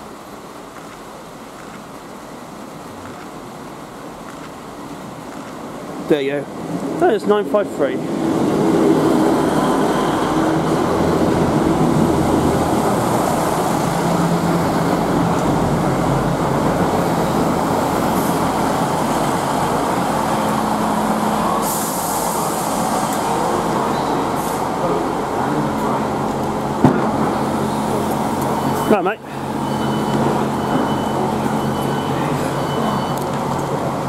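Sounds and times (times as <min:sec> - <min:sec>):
train wheels and diesel engines: 0:00.0 - 0:34.0
train hiss: 0:16.9 - 0:26.2.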